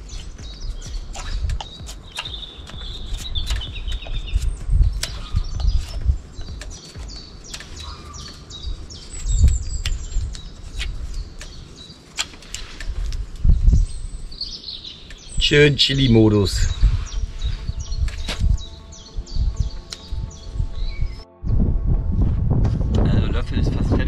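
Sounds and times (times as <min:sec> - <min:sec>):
small birds chirping: 0:00.0 - 0:21.3
sharp clicks: 0:01.2 - 0:04.0
low rumble bursts: 0:16.6 - 0:24.0.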